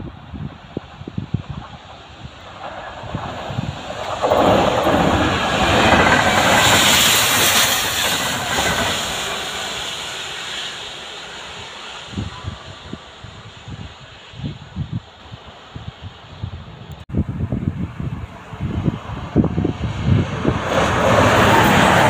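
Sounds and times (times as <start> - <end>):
train passing at speed: 0.0 - 22.0
loud water jet hiss: 5.3 - 14.8.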